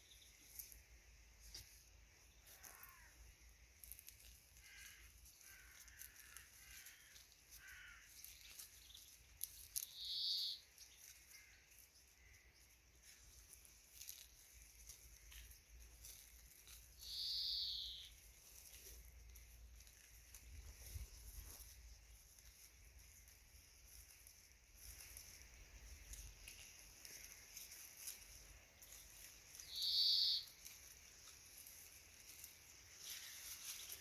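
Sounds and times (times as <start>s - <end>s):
birds chirping: 0.0s - 0.7s, 4.8s - 13.8s, 16.9s - 19.4s, 25.8s - 34.0s
high-pitched bird calls: 4.7s - 12.7s, 17.0s - 18.3s, 28.9s - 30.7s.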